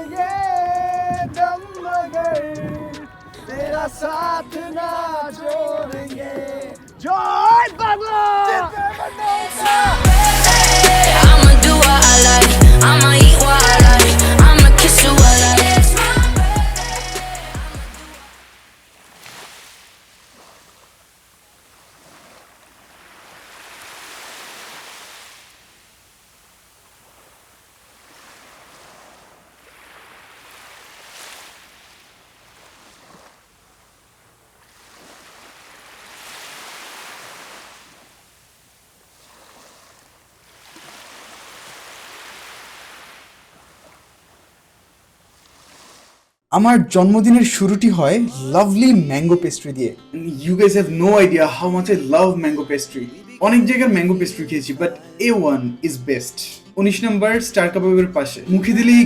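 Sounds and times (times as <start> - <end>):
sea waves breaking on beach: 0.0 - 11.3, 17.2 - 46.5.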